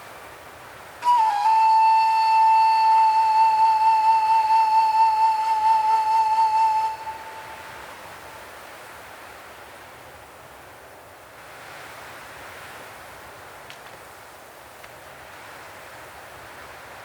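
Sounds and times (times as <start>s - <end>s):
long flute note: 1.0s - 8.3s.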